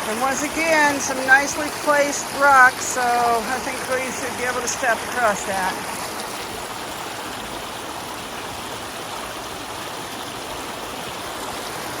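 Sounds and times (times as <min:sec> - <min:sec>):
creek rushing over rocks: 0:00.0 - 0:12.0.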